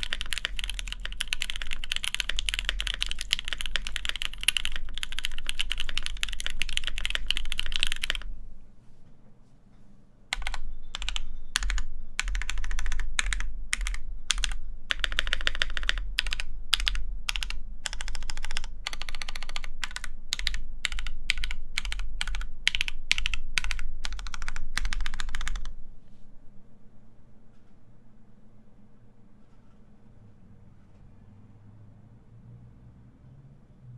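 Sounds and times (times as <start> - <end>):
mechanical keyboard typing: 0.0 - 8.3, 10.3 - 25.8.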